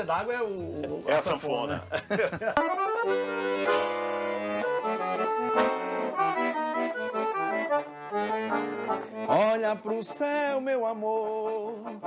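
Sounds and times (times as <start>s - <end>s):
accordion playing a tune: 2.6s - 12.0s.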